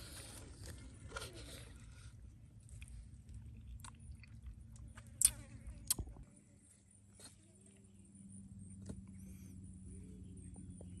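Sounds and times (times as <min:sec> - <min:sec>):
person chewing food: 0:00.0 - 0:06.1.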